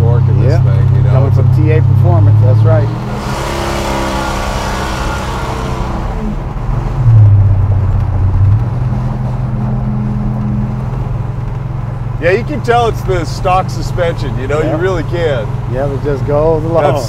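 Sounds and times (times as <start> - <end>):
car engine drone: 0.0 - 17.0
wind and road noise: 0.0 - 17.0.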